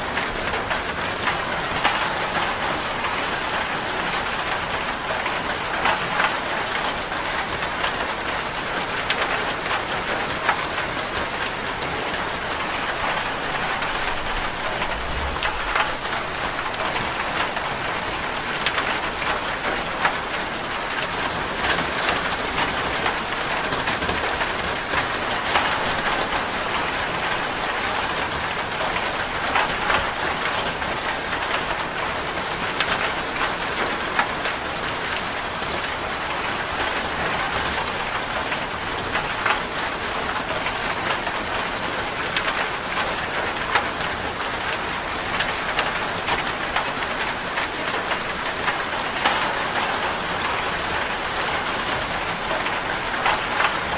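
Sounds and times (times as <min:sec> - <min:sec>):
steady rain: 0:00.0 - 0:53.9.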